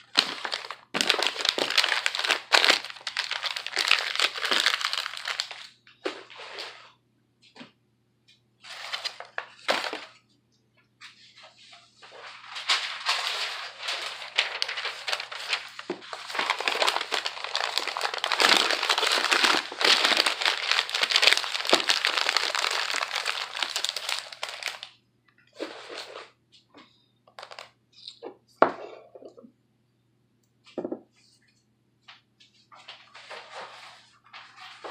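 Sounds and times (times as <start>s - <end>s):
packing paper crinkling: 0.0s - 5.8s, 8.7s - 10.2s, 12.0s - 25.0s, 27.3s - 27.7s.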